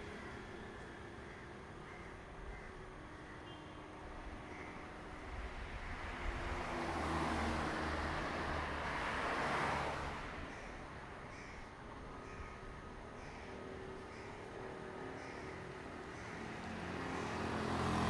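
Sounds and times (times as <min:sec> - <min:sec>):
crows cawing: 0:00.1 - 0:00.5, 0:01.2 - 0:03.4, 0:04.4 - 0:04.9, 0:10.5 - 0:17.6
vehicle passing by: 0:06.1 - 0:10.4, 0:16.6 - 0:18.0.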